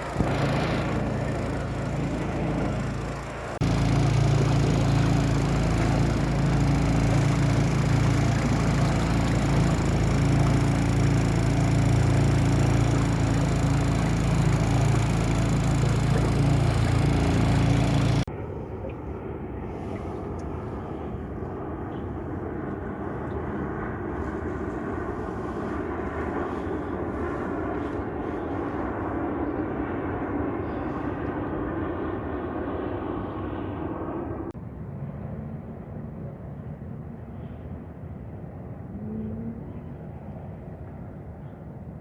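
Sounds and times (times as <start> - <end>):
outboard motor running: 0.0 - 18.3, 20.1 - 30.2.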